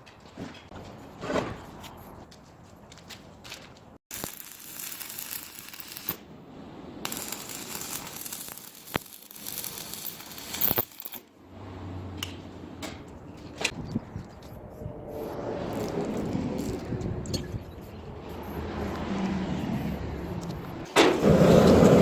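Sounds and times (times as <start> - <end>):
metal strips clinking and scraping: 7.1 - 11.3.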